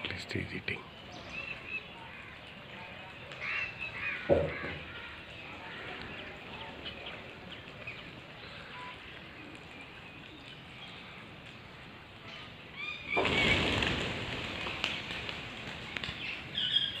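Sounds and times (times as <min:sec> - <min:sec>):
peafowl and parrots calling: 0:01.1 - 0:09.6, 0:12.3 - 0:15.3, 0:16.0 - 0:17.0.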